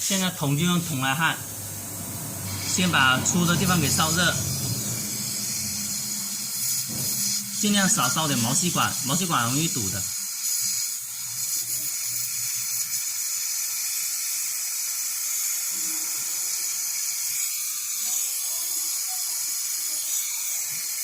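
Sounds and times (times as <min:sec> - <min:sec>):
torch flame hissing: 0:00.0 - 0:21.0.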